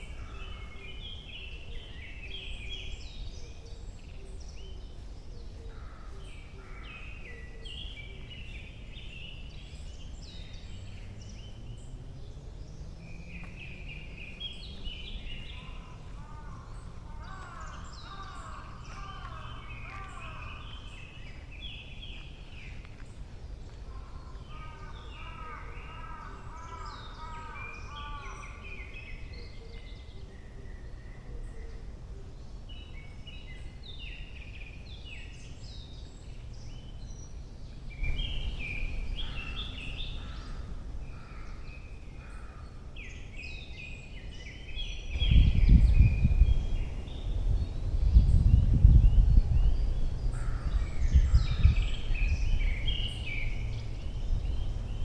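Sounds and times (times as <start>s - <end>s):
songbirds singing: 0.0s - 55.0s
wind buffeting microphone: 43.8s - 55.0s.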